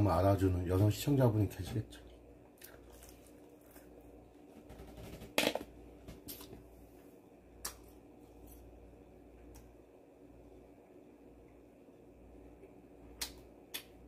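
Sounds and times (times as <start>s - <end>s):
crunchy chewing: 2.6s - 4.1s.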